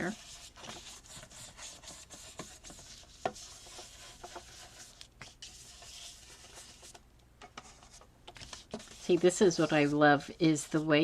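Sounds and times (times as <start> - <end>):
paper rustling: 7.6 - 10.0.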